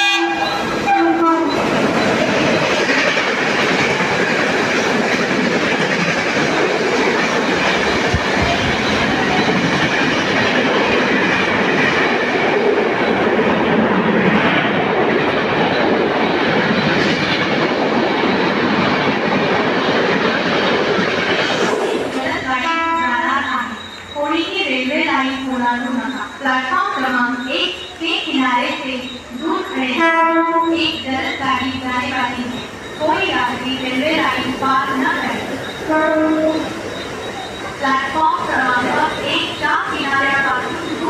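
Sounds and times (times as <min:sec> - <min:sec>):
train horn: 0:00.0 - 0:01.6, 0:22.2 - 0:24.3, 0:29.5 - 0:31.1, 0:35.8 - 0:36.8
train passing at speed: 0:00.0 - 0:41.0.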